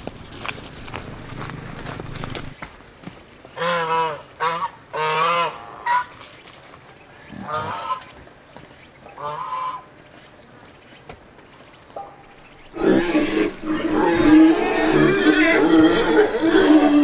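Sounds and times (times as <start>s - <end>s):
animal wavering cries: 12.7s - 17.0s.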